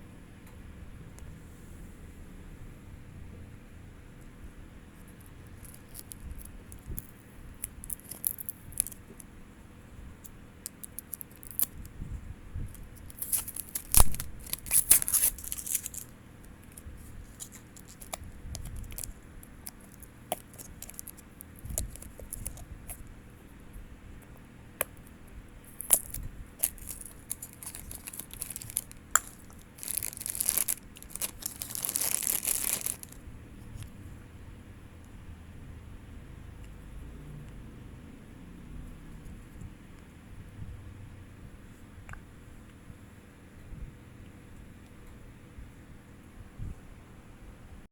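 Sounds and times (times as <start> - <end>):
packaging tearing and crinkling: 5.6 - 9.0, 10.6 - 11.9, 12.8 - 23.1, 25.7 - 33.2.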